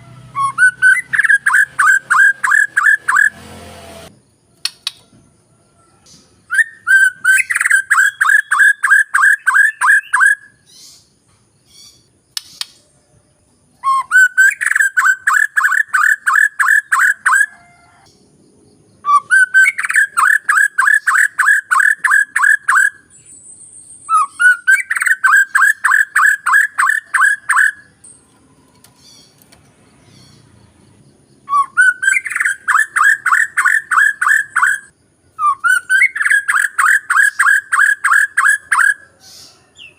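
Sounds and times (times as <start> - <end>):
bird song fast repeated note: 0.4 - 3.4.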